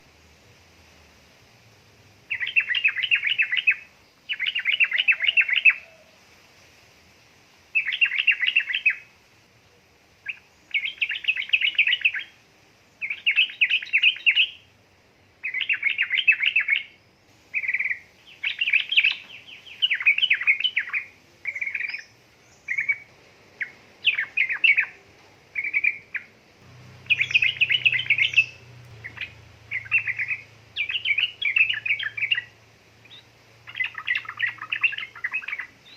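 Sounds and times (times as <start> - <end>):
faint low hum: 0.0 - 35.9
bird singing chattering notes: 2.3 - 5.8, 10.2 - 12.3, 13.0 - 14.6, 15.4 - 35.9.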